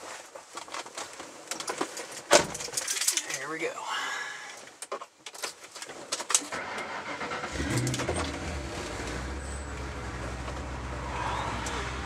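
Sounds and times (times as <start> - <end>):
car engine starting and idling: 6.5 - 12.0.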